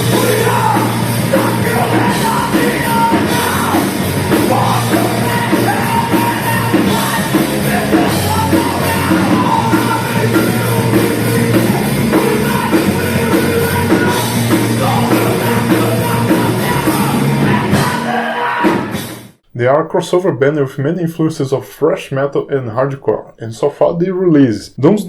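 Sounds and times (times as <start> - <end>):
shouted vocals: 0.0 - 19.0
driving drum beat: 0.0 - 19.2
bass guitar: 0.0 - 19.4
distorted guitars: 0.0 - 19.6.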